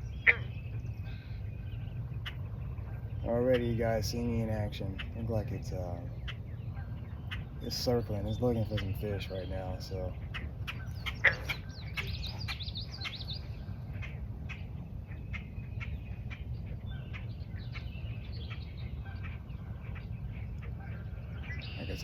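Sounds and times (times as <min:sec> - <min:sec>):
steady low rumble: 0:00.0 - 0:22.0
wild birds chirping: 0:00.0 - 0:22.0.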